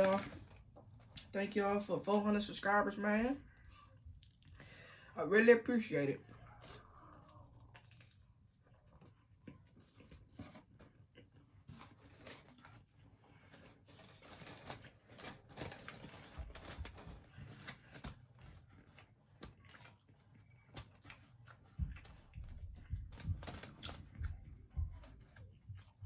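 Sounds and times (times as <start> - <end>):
chewing and mouth noises: 3.5 - 4.6, 6.2 - 12.8, 14.3 - 26.0.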